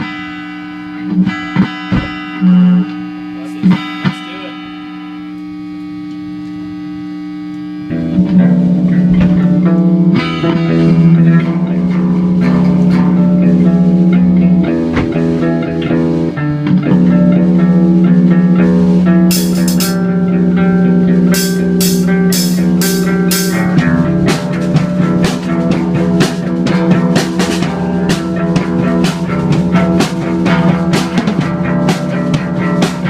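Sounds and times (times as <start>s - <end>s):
rock music: 0.0s - 33.0s
cymbal strokes: 18.8s - 25.6s.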